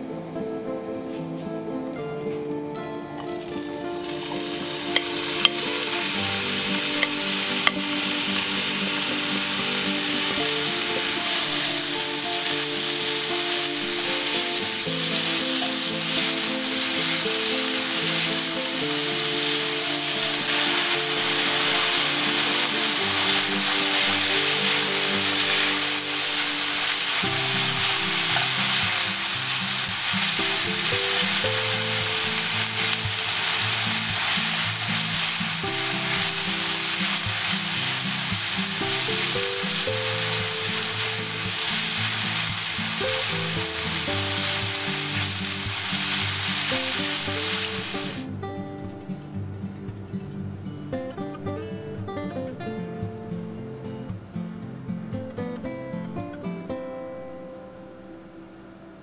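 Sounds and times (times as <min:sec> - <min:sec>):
soft background music: 0:00.0 - 0:59.0
food sizzling in frying pan: 0:03.1 - 0:48.3
spatula stirring and tossing: 0:03.3 - 0:08.5, 0:10.2 - 0:48.2.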